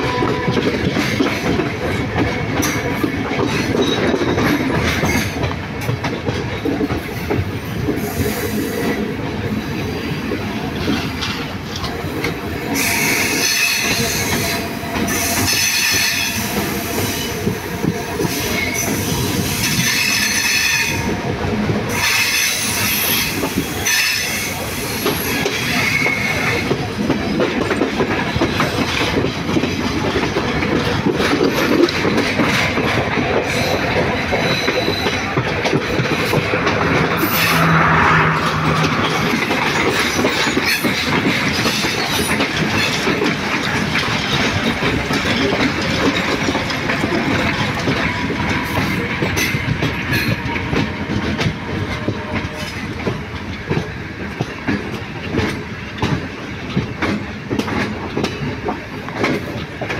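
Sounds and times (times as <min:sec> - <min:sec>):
train wheels rumbling on rails: 0:00.0 - 0:59.9
high wheel squeal: 0:21.9 - 0:26.6, 0:33.5 - 0:35.4, 0:36.9 - 0:41.0.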